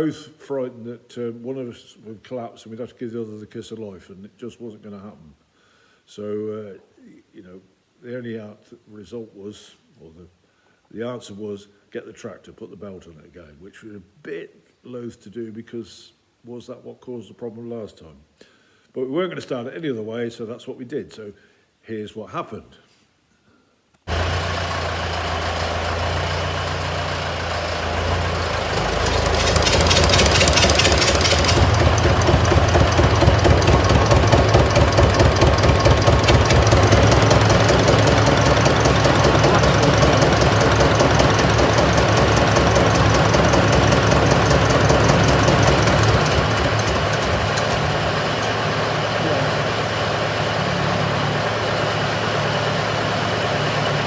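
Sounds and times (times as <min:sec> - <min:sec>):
belt-driven diesel engine turning over: 0:24.1 - 0:54.0
tractor engine running: 0:24.1 - 0:54.0.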